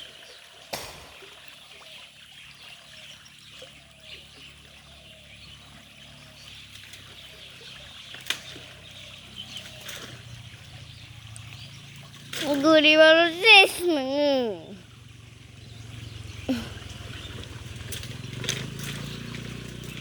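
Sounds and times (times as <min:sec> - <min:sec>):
water trickling and splashing: 0:00.0 - 0:20.0
sharp knock: 0:00.7 - 0:01.5.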